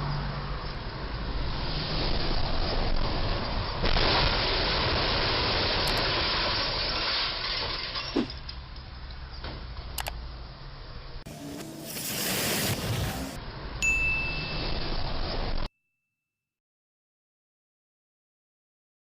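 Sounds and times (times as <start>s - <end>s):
street traffic noise: 0.0s - 6.0s, 7.5s - 15.7s.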